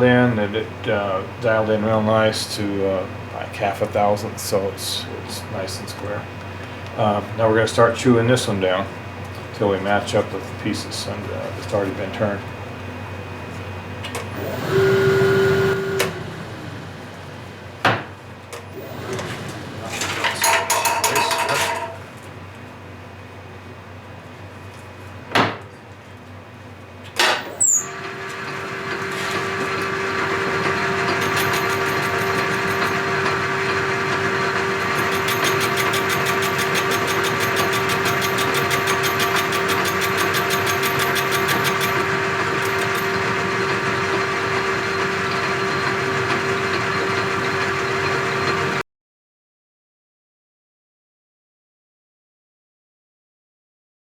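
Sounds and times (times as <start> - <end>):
metal lathe humming and whining: 14.3 - 17.3, 18.7 - 20.5, 27.4 - 48.8.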